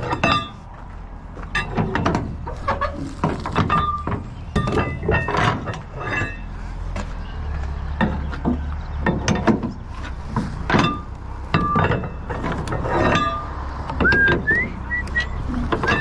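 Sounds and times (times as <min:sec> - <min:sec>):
low engine hum: 0:00.0 - 0:16.0
metal rebar clanking: 0:00.0 - 0:16.0
person whistling: 0:14.0 - 0:15.5.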